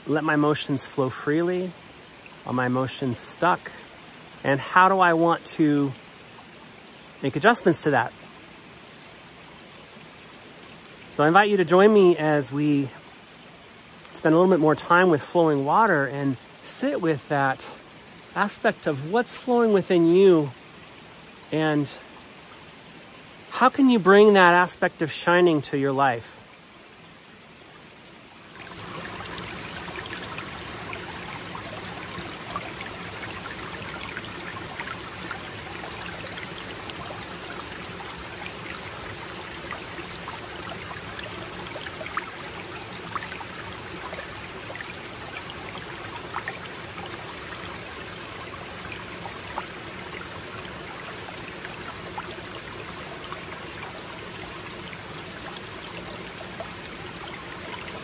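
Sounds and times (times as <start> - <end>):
small splashes and drips: 0.0 - 24.1, 25.3 - 58.0
brook water flowing: 0.0 - 58.0.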